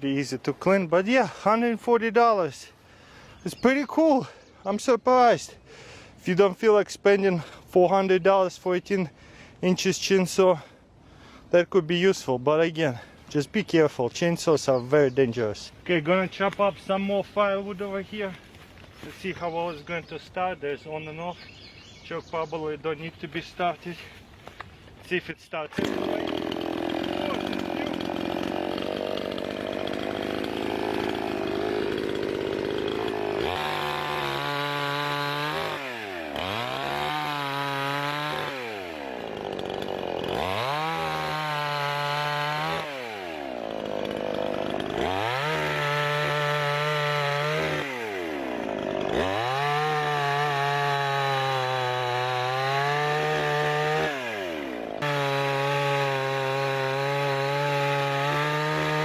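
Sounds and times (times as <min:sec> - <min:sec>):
chainsaw cutting firewood: 0:00.0 - 0:01.9, 0:23.6 - 0:59.0.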